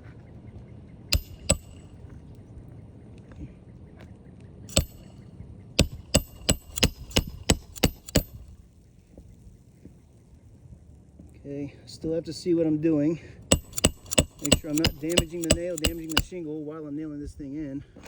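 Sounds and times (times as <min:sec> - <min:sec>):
hammer striking metal tool: 0:01.2 - 0:02.0, 0:04.7 - 0:05.1, 0:05.8 - 0:08.5, 0:13.5 - 0:16.4.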